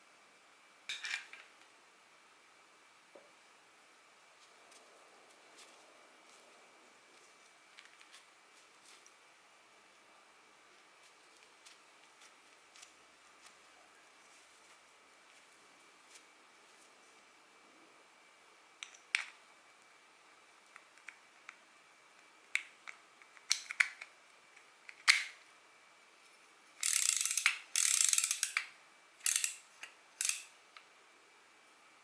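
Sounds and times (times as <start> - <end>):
fishing reel clicks and taps: 26.8 - 29.6, 30.2 - 30.5
reel ratcheting clicks: 26.8 - 29.6, 30.2 - 30.5.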